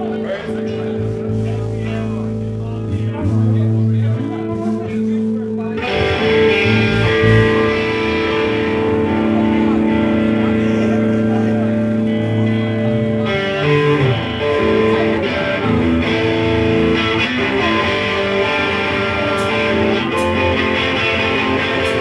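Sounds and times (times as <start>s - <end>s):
electric guitar: 0.0s - 22.0s
live band playing: 0.0s - 22.0s.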